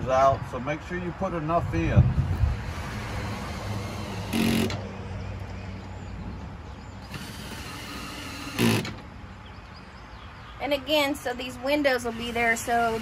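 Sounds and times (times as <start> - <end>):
cordless drill driving screws: 2.6 - 4.8, 7.0 - 9.1, 12.0 - 13.0.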